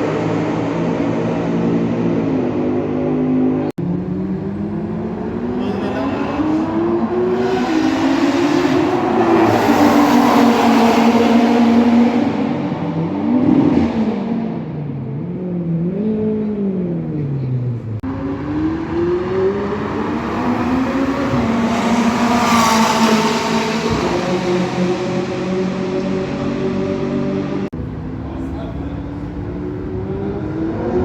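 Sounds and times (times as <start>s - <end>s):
race car engine revving: 0.0s - 31.0s.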